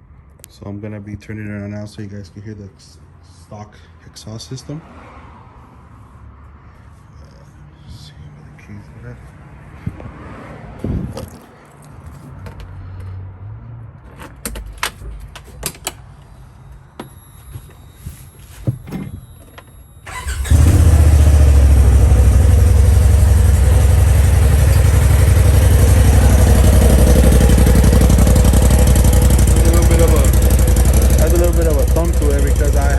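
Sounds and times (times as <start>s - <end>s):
engine starting and idling loudly: 20.1s - 32.9s.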